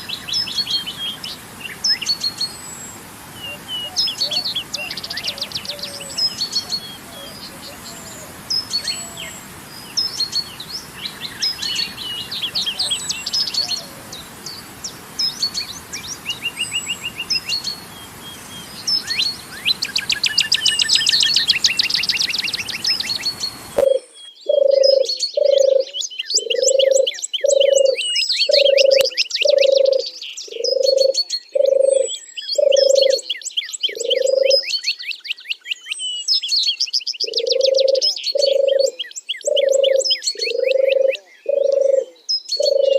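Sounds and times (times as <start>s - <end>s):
flowing water rushing: 0.0s - 23.9s
songbirds chirping and trilling: 0.0s - 42.9s.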